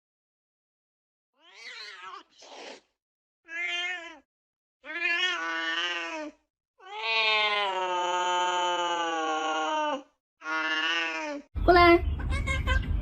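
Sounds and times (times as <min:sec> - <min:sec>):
cat yowling: 0:01.4 - 0:02.4, 0:03.5 - 0:04.2, 0:04.8 - 0:11.4.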